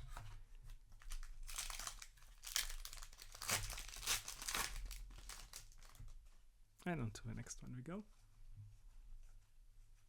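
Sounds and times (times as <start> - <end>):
foil wrapper crinkling: 1.0 - 6.2.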